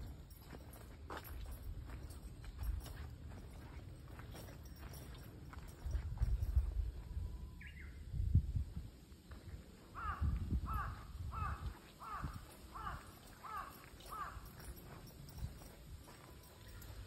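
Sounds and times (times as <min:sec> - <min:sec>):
footsteps: 0:00.0 - 0:07.2, 0:11.7 - 0:17.0
bird calling: 0:10.0 - 0:17.0.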